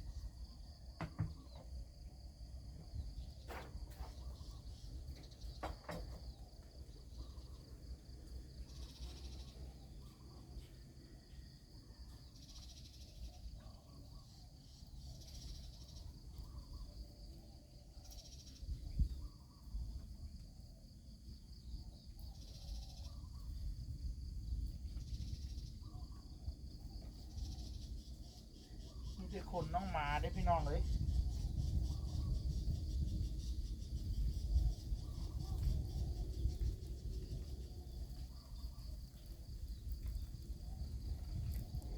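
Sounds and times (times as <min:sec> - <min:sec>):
thump: 0:01.0 - 0:01.6
insect chirring: 0:18.0 - 0:41.9.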